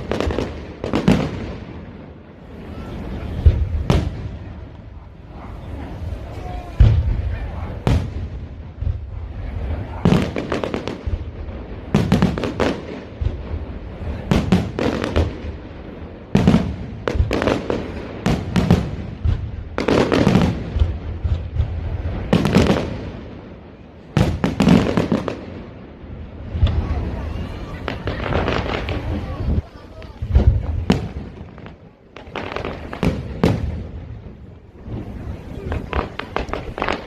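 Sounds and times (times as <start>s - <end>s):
fireworks bursting: 0.0s - 37.0s
fireworks crackling: 0.0s - 37.0s.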